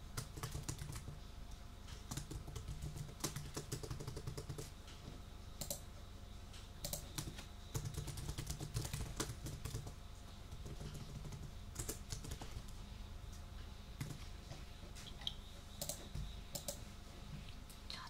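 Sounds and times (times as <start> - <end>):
typing on computer keyboard: 0.1 - 1.2, 2.0 - 4.7, 5.6 - 5.8, 6.8 - 12.8, 14.0 - 14.2, 15.8 - 16.8.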